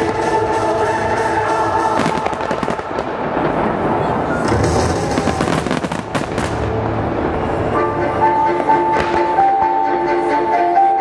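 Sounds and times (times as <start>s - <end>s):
fireworks crackling and popping: 1.7s - 7.5s, 8.6s - 9.4s
deep fireworks booms: 1.9s - 7.8s.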